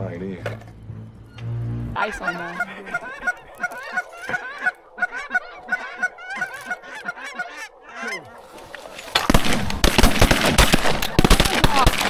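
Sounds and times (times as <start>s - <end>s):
geese honking: 2.0s - 12.0s
shotgun fire: 9.2s - 12.0s.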